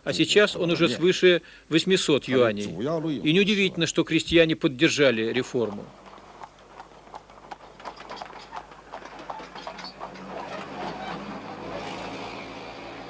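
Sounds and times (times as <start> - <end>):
irregular clicks and knocks: 6.1 - 11.0.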